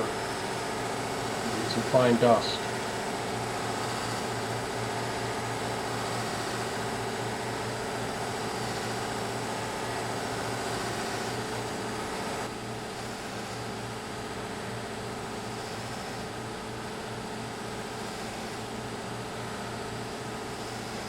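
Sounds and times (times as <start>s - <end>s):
buffing machine humming: 0.0s - 13.4s.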